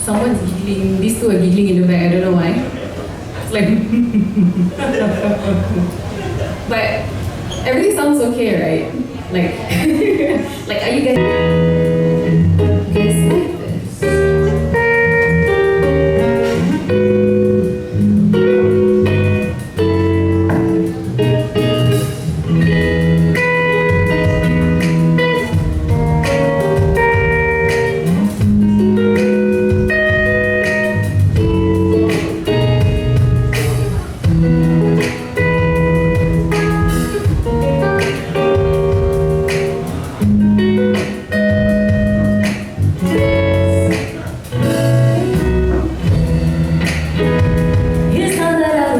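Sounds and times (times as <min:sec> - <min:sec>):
live guitar music: 0:00.0 - 0:48.9
bass line: 0:11.2 - 0:48.9.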